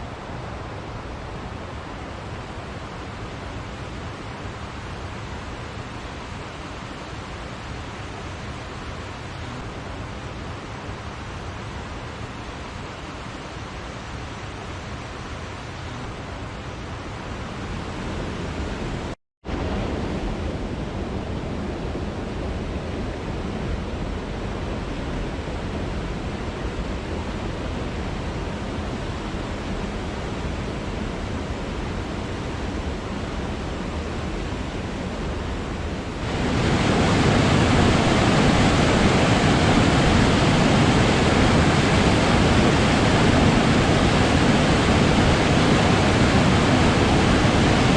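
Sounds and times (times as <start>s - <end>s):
waterfall rushing: 35.9s - 47.9s.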